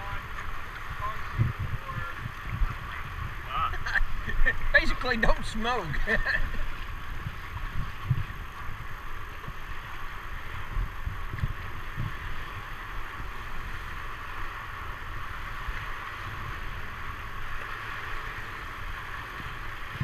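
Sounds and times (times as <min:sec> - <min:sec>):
high outdoor hiss: 0:00.0 - 0:20.0
wind buffeting microphone: 0:00.0 - 0:20.0.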